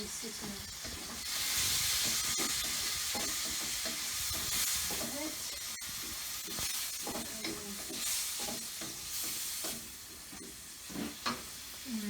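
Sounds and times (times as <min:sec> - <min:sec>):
spatula scraping and knocking pan: 0:00.0 - 0:11.7
rice sizzling in a pan: 0:00.0 - 0:12.0.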